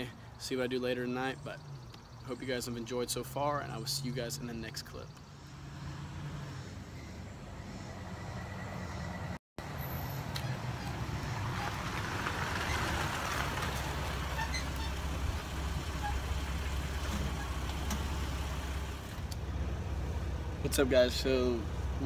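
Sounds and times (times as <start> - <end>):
tyres rolling on concrete: 10.4 - 18.3
car engine idling: 10.4 - 22.0.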